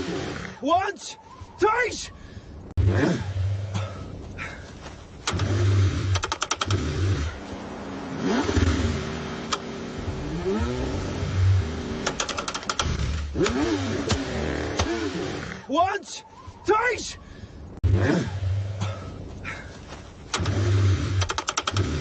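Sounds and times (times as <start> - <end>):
car engine cranking: 5.2 - 7.4, 8.2 - 15.6, 20.2 - 22.0.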